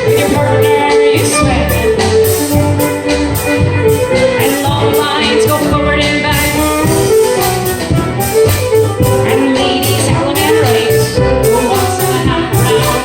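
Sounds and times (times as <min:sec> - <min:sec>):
fiddle melody: 0:00.0 - 0:13.0
keyboard: 0:00.0 - 0:13.0
mandolin: 0:00.0 - 0:13.0
percussion beat: 0:00.0 - 0:13.0.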